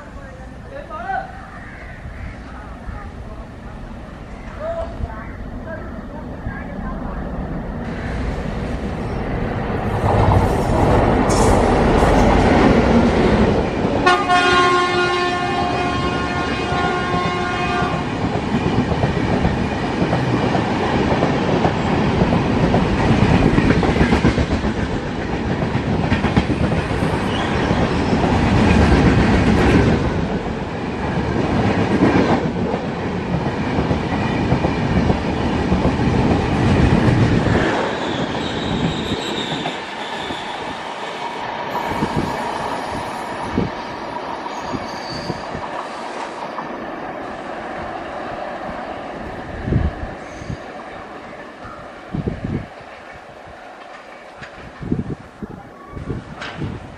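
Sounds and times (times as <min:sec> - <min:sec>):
train rushing rumble: 0:00.0 - 0:56.9
train wheels clickety-clack: 0:10.0 - 0:14.2, 0:16.8 - 0:46.8, 0:52.7 - 0:55.0, 0:56.3 - 0:56.9
train horn blast: 0:14.0 - 0:18.1.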